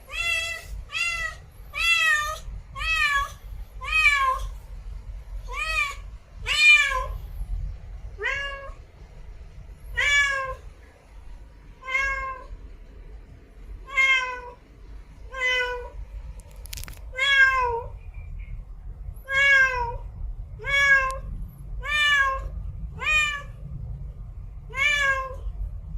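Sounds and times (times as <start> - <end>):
cat meowing: 0.1 - 4.6, 5.5 - 7.2, 8.2 - 8.8, 9.9 - 10.6, 11.8 - 12.5, 13.8 - 14.6, 15.3 - 16.0, 17.1 - 17.9, 19.2 - 20.0, 20.6 - 23.5, 24.7 - 25.5.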